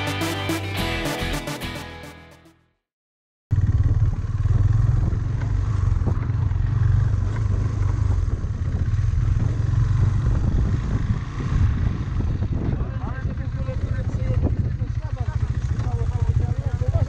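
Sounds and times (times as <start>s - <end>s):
motorcycle engine running: 3.5s - 17.0s.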